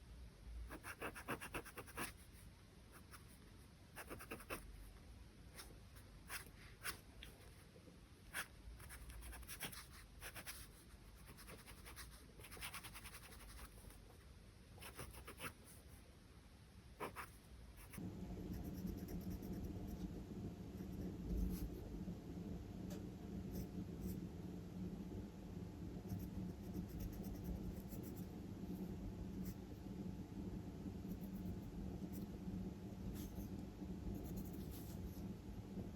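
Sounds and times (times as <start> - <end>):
pencil scratching on paper: 0.7 - 3.4, 4.0 - 4.7, 8.3 - 14.0, 14.8 - 15.8, 17.0 - 19.6, 34.2 - 35.2.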